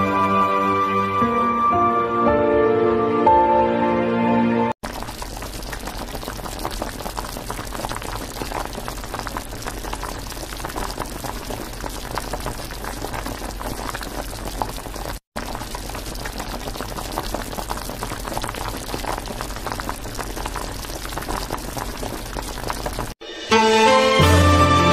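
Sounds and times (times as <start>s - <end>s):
broth bubbling and crackling: 4.8s - 23.2s.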